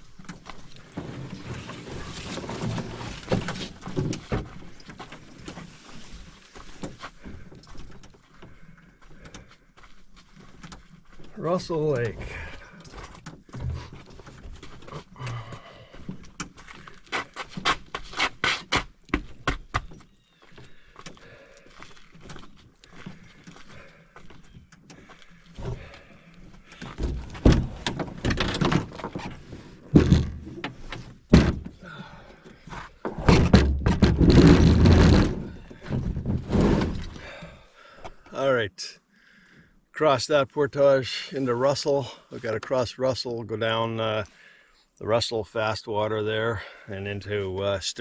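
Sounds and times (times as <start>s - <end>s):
rough noise: 0.8s - 3.8s, 33.1s - 37.4s
knocks and thumps: 26.8s - 31.9s, 32.7s - 37.4s.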